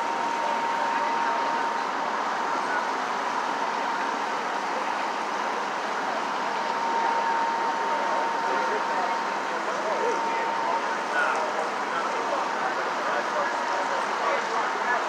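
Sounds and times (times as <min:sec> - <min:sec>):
thin high whine: 0:00.0 - 0:13.0.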